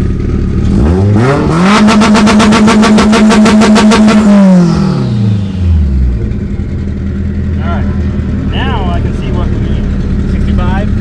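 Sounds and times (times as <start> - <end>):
car engine revving with pops: 0.0 - 7.3.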